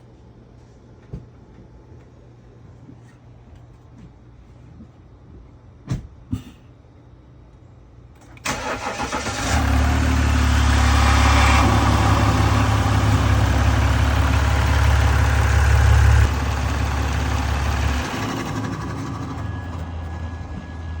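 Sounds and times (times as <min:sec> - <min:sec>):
diesel engine cranking and running: 0:08.2 - 0:21.0.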